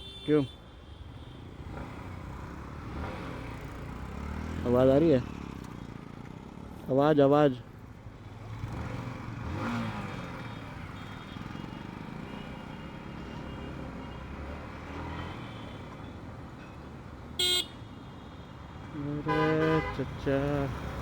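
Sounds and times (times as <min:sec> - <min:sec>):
vehicle horn blast: 0:00.0 - 0:01.6, 0:17.4 - 0:17.9, 0:19.2 - 0:20.2
road traffic rumble: 0:00.0 - 0:21.0.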